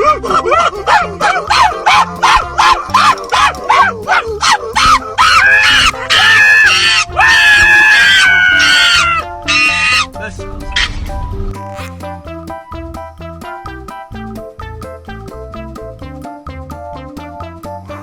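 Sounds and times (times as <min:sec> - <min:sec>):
dog yipping and howling: 0:00.0 - 0:10.1
background music: 0:00.0 - 0:18.0.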